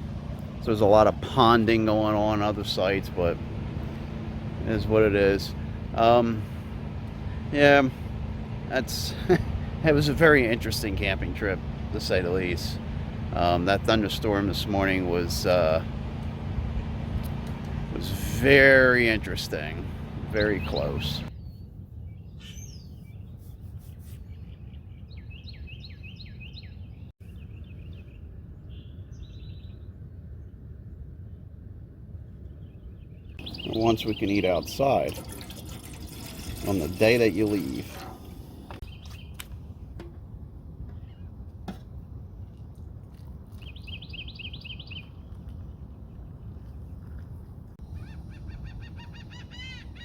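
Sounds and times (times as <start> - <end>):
low background rumble: 0.0 - 50.0
small birds chirping: 19.6 - 30.0, 32.5 - 35.5, 38.6 - 39.7, 43.4 - 50.0
bird trill: 33.4 - 35.0, 43.6 - 45.2, 47.8 - 50.0.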